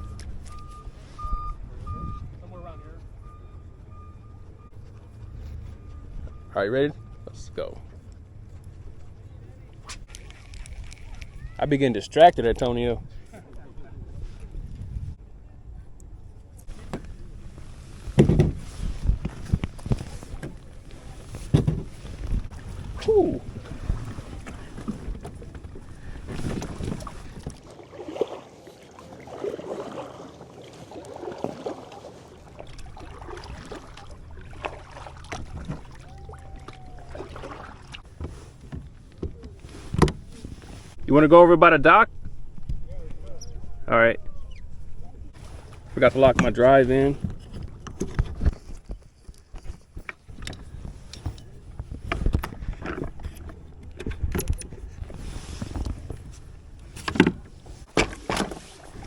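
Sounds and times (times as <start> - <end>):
wind rumble on microphone: 0.0 - 3.9, 7.9 - 27.7, 32.5 - 41.2, 41.8 - 58.0
water splashing around kayak: 7.6 - 15.1, 16.6 - 41.0, 45.3 - 59.0
knocks against plastic hull: 18.2 - 18.6.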